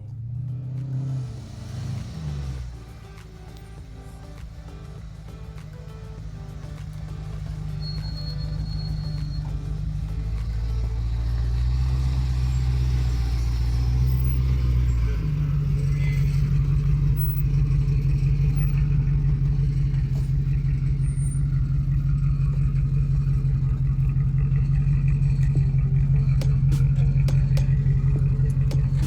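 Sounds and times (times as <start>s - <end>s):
engine running low drone: 0.0s - 29.0s.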